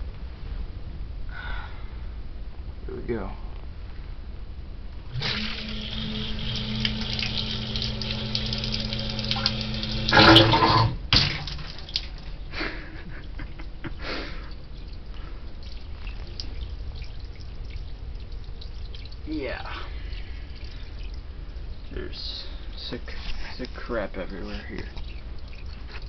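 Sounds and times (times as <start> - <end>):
pump motor humming: 5.1 - 22.9
water dripping and splashing: 5.1 - 26.0.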